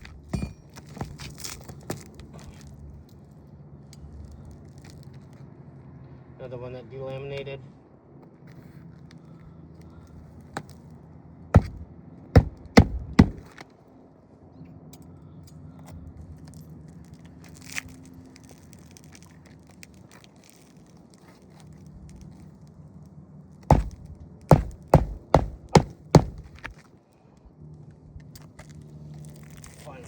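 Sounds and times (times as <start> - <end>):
hammer knocking on roof: 11.6 - 11.8, 12.4 - 13.5, 23.7 - 26.7.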